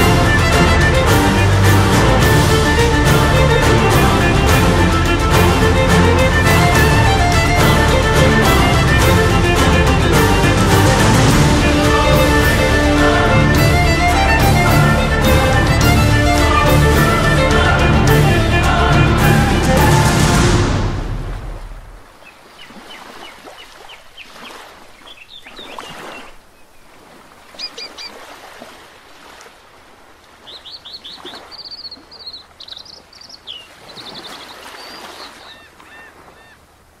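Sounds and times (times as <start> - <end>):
music: 0.0 - 21.4
birds chirping and trilling: 22.2 - 26.9, 27.5 - 28.2, 30.4 - 36.6.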